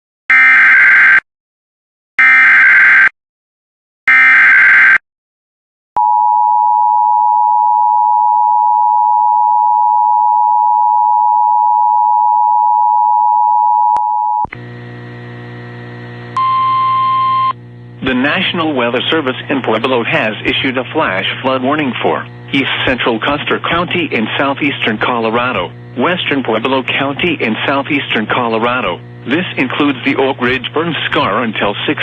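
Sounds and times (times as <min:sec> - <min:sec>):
steady multi-pitched buzz: 0:14.6 - 0:32.0
two-tone attention signal: 0:16.4 - 0:17.6.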